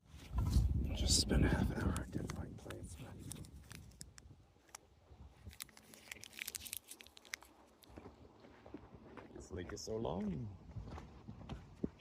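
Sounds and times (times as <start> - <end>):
footsteps through dry leaves: 5.4 - 7.5.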